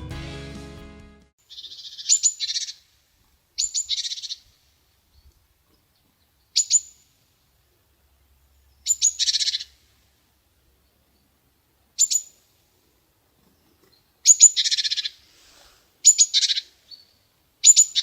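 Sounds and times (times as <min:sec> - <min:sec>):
chickadee calling: 0:01.5 - 0:02.8, 0:03.6 - 0:04.5, 0:08.8 - 0:09.7, 0:14.2 - 0:18.0.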